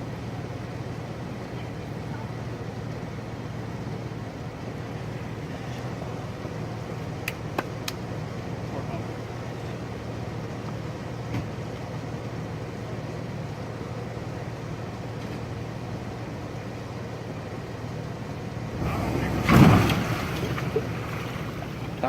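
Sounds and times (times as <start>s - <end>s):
pickup engine idling and revving: 0.0s - 22.0s.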